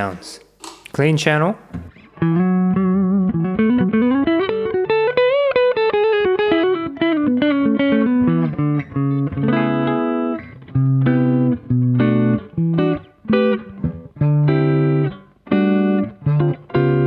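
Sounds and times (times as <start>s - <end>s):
clean electric guitar: 1.6s - 17.0s.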